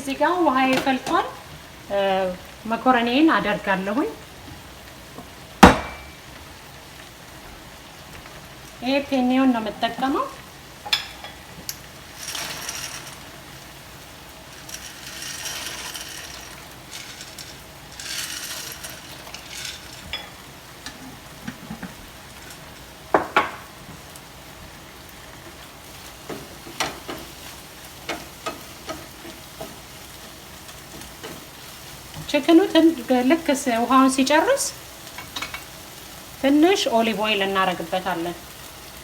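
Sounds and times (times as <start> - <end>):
faint frying sizzle: 0.0 - 39.0
dry pasta poured into pot: 12.1 - 13.8, 14.4 - 20.2.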